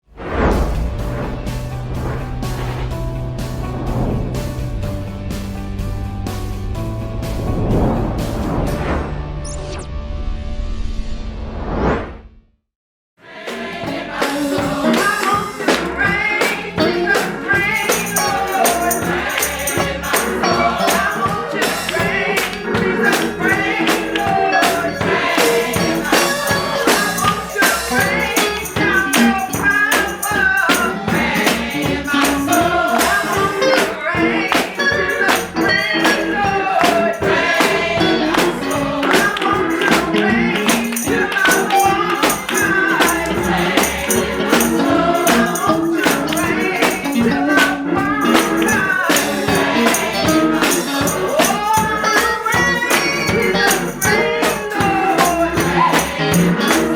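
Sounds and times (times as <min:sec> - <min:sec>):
people singing gospel song: 0:13.2 - 0:56.9
tambourine struck in rhythm: 0:13.3 - 0:56.9.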